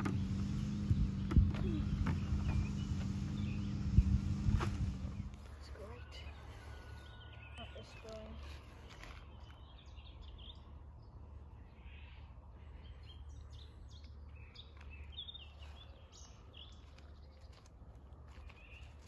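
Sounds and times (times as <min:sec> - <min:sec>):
low steady rumble: 0:00.0 - 0:06.0.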